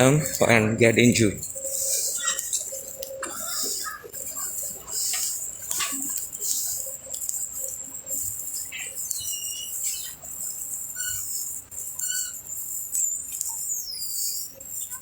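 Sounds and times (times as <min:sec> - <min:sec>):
birds chirping: 0:00.0 - 0:11.4
high-pitched insect buzz: 0:01.4 - 0:15.0
falling bird whistle: 0:09.0 - 0:10.2.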